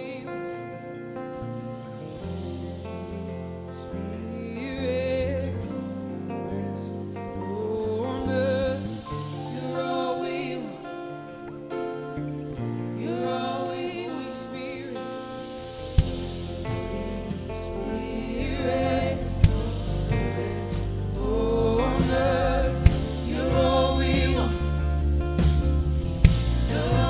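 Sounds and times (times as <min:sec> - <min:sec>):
bass: 0:00.0 - 0:27.0
keyboard chords: 0:00.0 - 0:27.0
voices singing worship song: 0:00.0 - 0:27.0
drum hits: 0:22.0 - 0:27.0.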